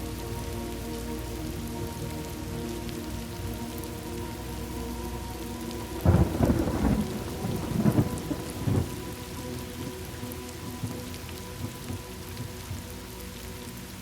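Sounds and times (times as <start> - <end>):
steady rain: 0.0 - 14.0
rolling thunder rumble: 6.0 - 9.4.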